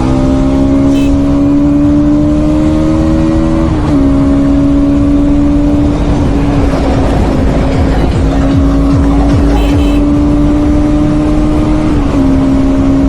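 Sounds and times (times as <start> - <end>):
motorcycle engine running hard: 0.0 - 13.0
wind rush on microphone: 3.6 - 9.6.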